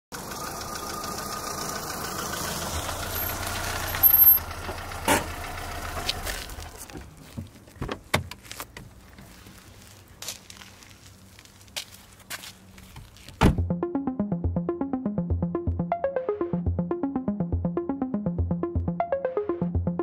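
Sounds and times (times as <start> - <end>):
car engine running: 0.1 - 7.6.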